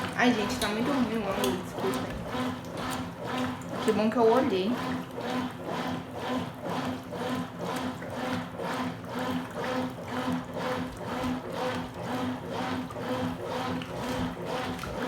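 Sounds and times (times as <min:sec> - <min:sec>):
water sloshing: 0:00.0 - 0:05.6, 0:09.2 - 0:15.0
washing machine motor hum: 0:00.0 - 0:15.0.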